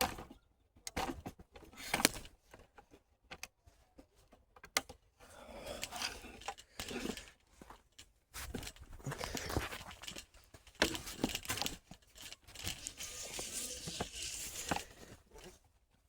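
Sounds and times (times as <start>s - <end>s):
clicks and knocks of gear: 0.0s - 5.0s, 5.7s - 15.6s
gear rustling and crinkling: 5.4s - 16.0s.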